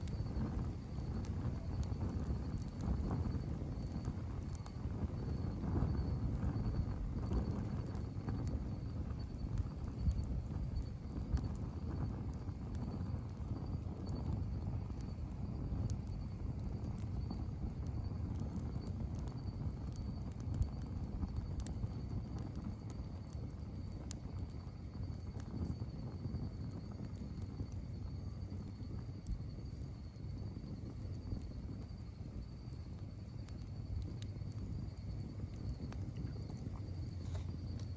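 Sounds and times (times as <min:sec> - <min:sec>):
low rumble of flames: 0:00.0 - 0:37.9
faint steady high tone: 0:31.8 - 0:37.9
wood popping and crackling: 0:33.4 - 0:37.9.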